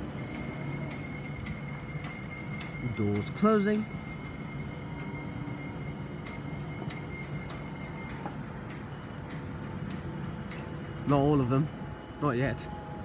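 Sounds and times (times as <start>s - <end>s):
electric train hum: 0.0s - 13.0s.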